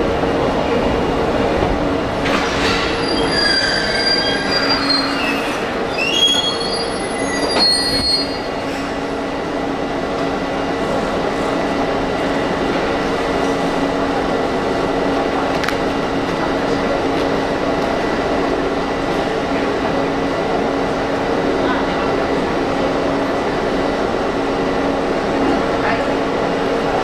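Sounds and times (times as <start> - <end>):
standing train humming: 0.0 - 27.0
train brake squeal: 2.6 - 8.9.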